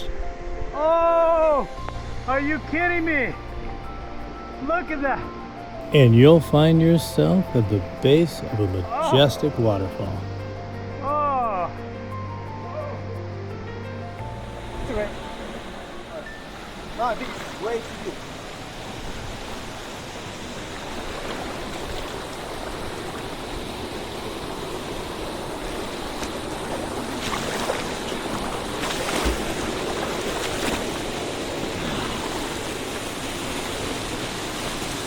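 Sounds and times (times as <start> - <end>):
waterfall rushing into pool: 15.0 - 35.0.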